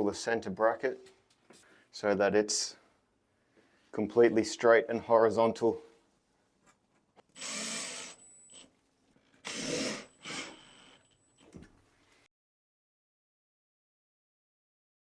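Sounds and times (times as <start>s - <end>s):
power drill driving screws into wood: 7.3s - 8.7s, 9.4s - 11.2s.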